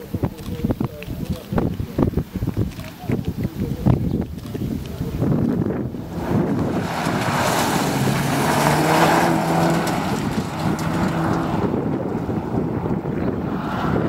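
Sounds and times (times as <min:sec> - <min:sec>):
wind buffeting microphone: 0:00.0 - 0:14.0
car engine accelerating hard: 0:05.6 - 0:14.0.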